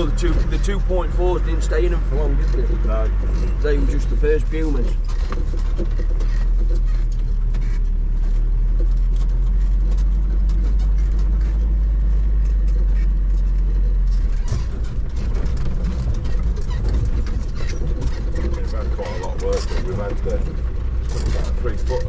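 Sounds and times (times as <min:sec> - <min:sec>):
diesel engine droning in cab: 0:00.0 - 0:22.0
knocks and rattles: 0:00.0 - 0:22.0.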